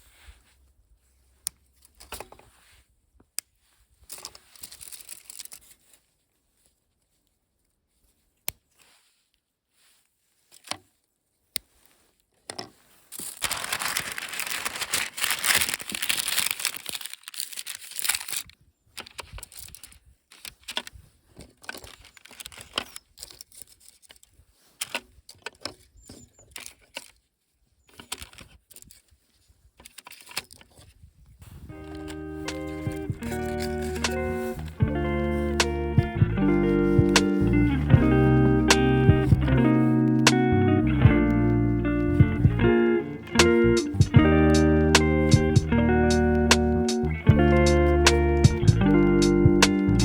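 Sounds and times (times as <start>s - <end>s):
crinkling rustling handling noise: 0.0s - 50.0s
sharp clicks: 43.3s - 47.3s.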